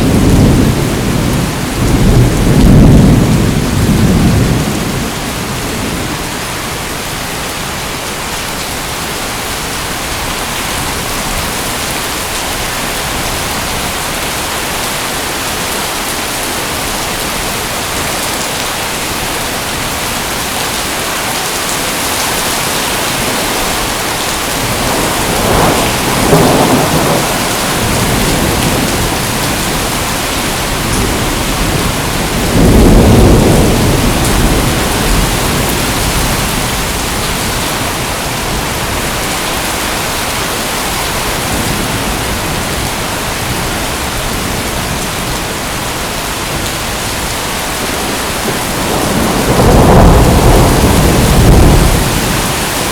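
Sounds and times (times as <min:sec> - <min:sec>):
thunder rumbling: 0:00.0 - 0:06.4, 0:22.0 - 0:52.9
rain pouring down: 0:00.0 - 0:52.9.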